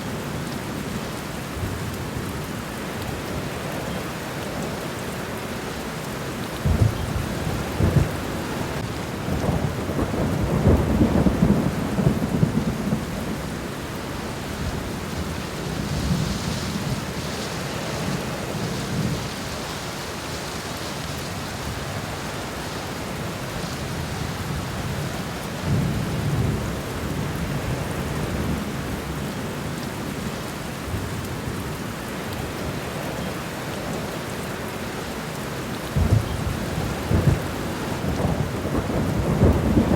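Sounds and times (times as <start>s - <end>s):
rain falling on leaves: 0.0s - 39.9s
thunder rumbling: 6.6s - 19.6s, 36.0s - 39.9s.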